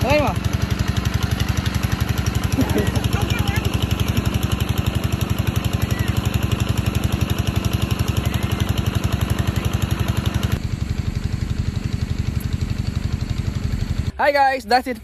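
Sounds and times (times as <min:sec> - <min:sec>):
small engine chugging: 0:00.0 - 0:15.0.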